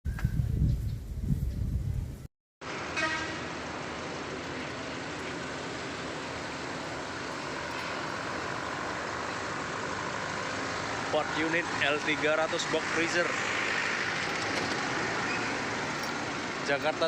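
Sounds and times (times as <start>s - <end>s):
traffic noise: 2.6s - 17.0s
horn toot: 2.8s - 3.5s.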